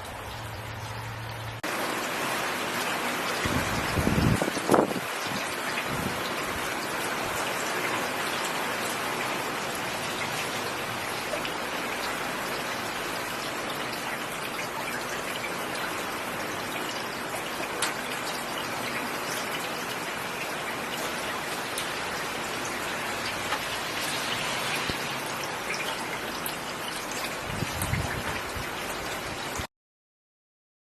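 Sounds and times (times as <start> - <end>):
steady rainfall: 0.0 - 29.7
rain drop ticks: 9.2 - 29.3.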